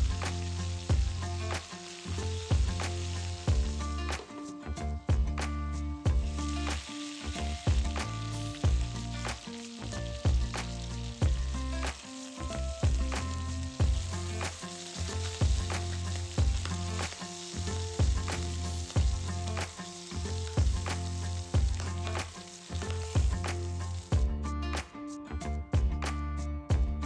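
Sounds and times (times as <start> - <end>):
food sizzling in a skillet: 0.0 - 24.2
instrumental music with steady beat: 0.0 - 27.0.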